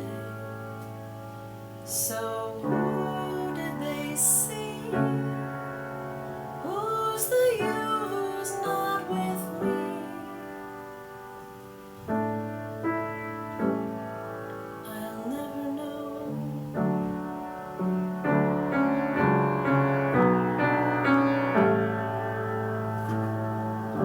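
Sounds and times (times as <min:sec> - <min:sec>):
piano chords and melody: 0:00.0 - 0:24.0.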